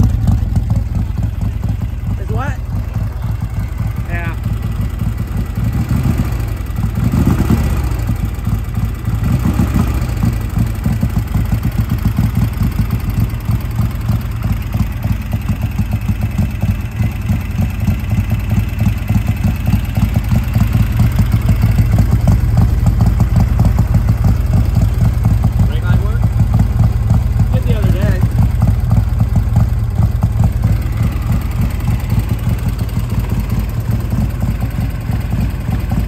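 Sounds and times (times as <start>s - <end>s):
motorcycle engine idling and revving: 0.0s - 36.0s.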